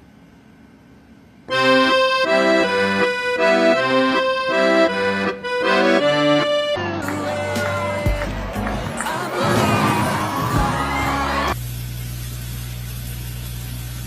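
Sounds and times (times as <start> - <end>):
instrumental music: 1.5 - 11.6.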